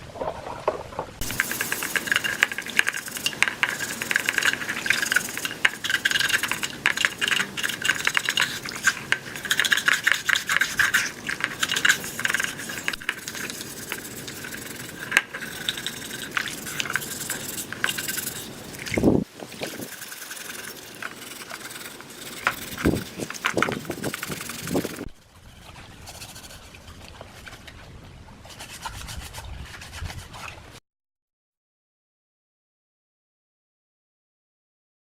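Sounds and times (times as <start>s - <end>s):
abrasive rasping on metal: 1.2s - 19.0s, 19.6s - 27.7s.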